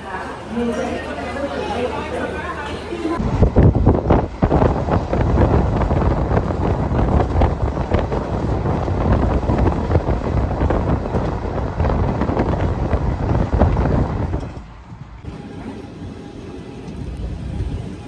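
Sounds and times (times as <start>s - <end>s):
passenger train rumbling and rattling: 0.0s - 18.0s
wind buffeting microphone: 3.2s - 15.4s.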